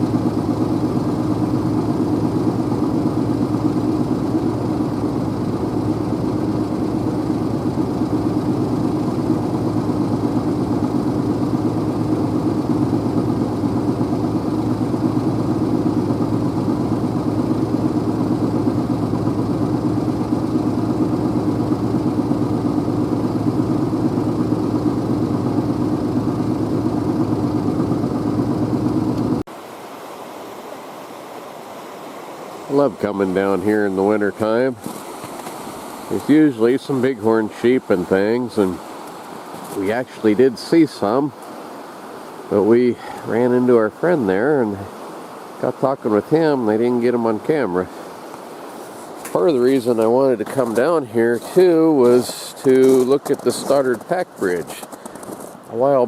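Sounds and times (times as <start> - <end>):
car engine: 0.0 - 29.5, 49.2 - 55.7
road noise: 0.0 - 56.0.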